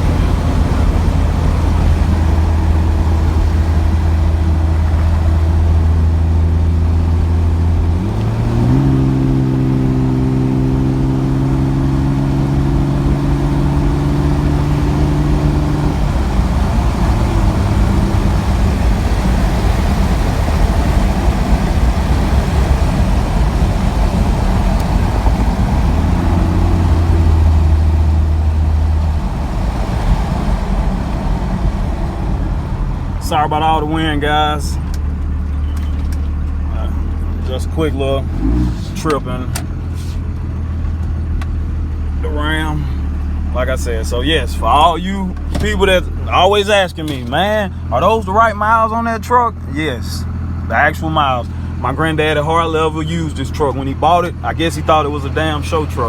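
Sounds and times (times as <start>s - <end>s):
wind rush: 0.0s - 6.7s, 12.9s - 33.9s
diesel engine droning: 0.0s - 56.0s.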